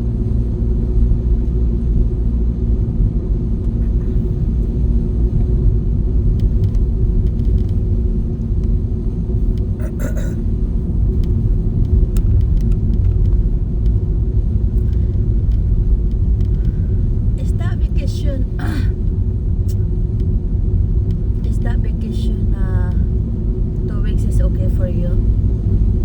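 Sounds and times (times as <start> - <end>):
tyre noise on snowy road: 0.0 - 21.6
car engine rumble inside cabin: 0.0 - 26.0.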